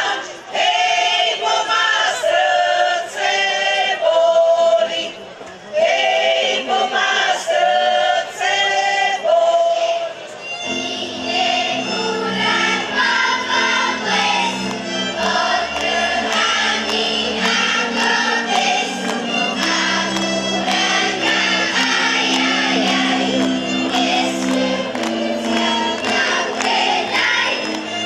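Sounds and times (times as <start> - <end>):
choir singing: 0.0 - 28.0
instrumental backing with beat: 10.4 - 28.0.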